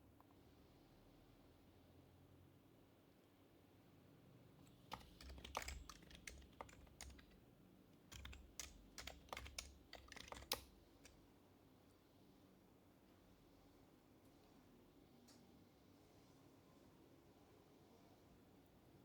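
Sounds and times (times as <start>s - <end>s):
soft keyboard typing: 4.6s - 7.4s, 8.1s - 11.2s.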